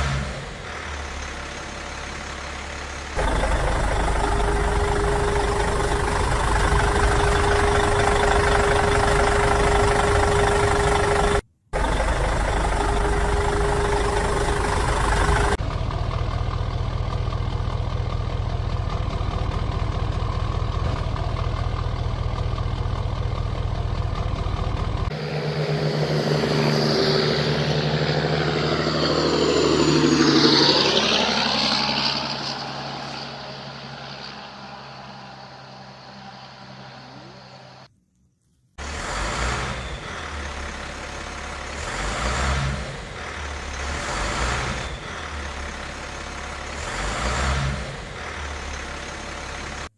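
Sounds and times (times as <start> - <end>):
heavy truck engine running: 0.0 - 37.9, 38.8 - 49.9
sweeping tones: 25.1 - 37.9.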